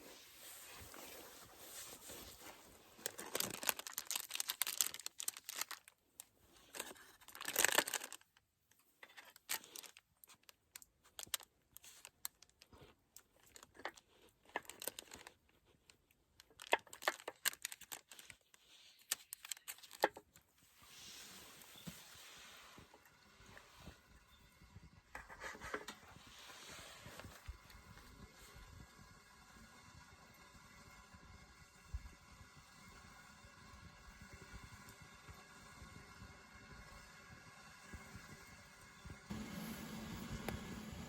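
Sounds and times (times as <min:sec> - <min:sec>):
material crinkling and tearing: 0:00.1 - 0:21.9.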